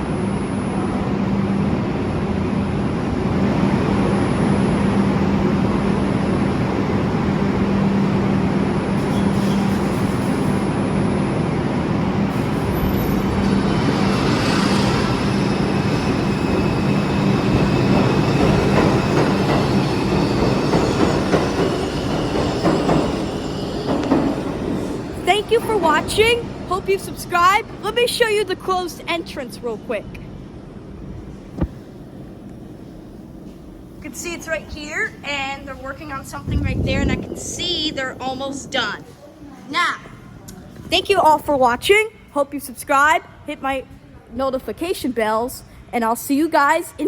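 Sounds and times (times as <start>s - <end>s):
subway train rumbling: 0.0s - 47.0s
high wheel squeal: 12.5s - 25.0s.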